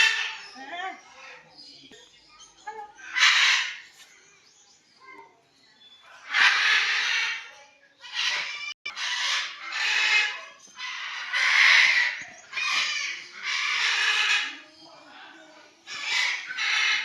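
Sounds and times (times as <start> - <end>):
parrots squawking: 0.0 - 1.5, 2.9 - 3.8, 6.2 - 17.0.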